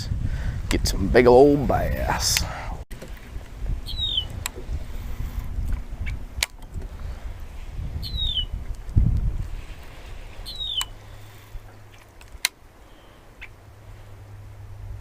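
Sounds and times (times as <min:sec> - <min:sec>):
wind rumbling on microphone: 0:00.0 - 0:15.0
sharp clicks: 0:06.0 - 0:06.9, 0:10.7 - 0:11.0
bird call sliding down: 0:09.6 - 0:12.1.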